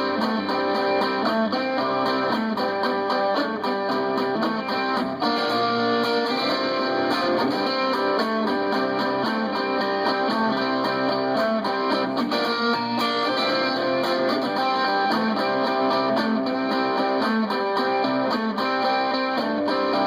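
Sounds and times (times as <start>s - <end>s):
plucked and strummed guitar: 0.0s - 20.0s.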